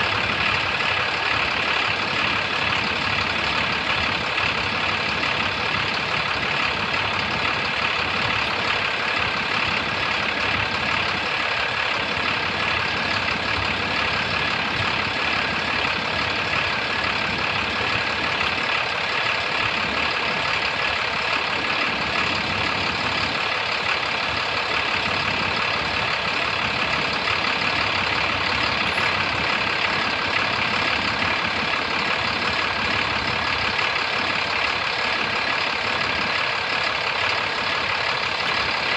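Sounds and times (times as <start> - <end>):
diesel engine running steadily: 0.0 - 38.9.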